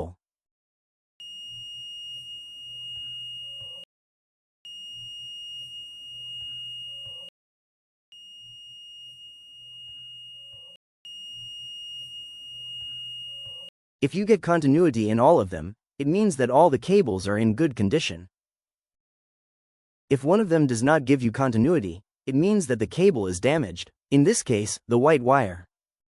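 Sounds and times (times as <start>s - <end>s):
multimeter continuity beeps: 1.2s - 3.9s, 4.7s - 7.3s, 8.1s - 13.7s.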